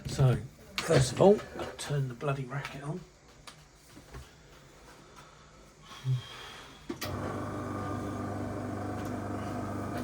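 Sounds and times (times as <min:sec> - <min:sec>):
airbrush compressor humming: 0:07.0 - 0:10.0.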